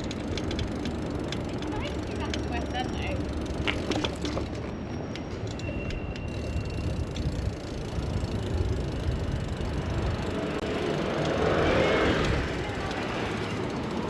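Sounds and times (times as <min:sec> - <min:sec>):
road and traffic noise: 0:00.0 - 0:14.0
wind rumbling on microphone: 0:06.0 - 0:13.4.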